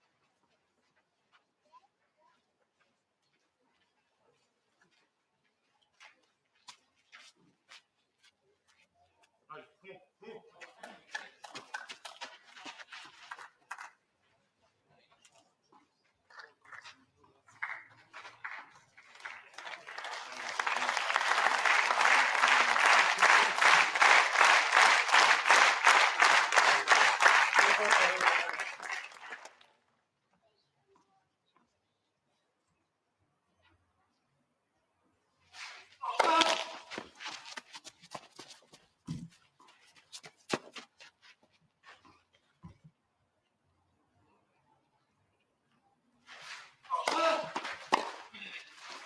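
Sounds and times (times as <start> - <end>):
crowd applauding: 17.5 - 29.7.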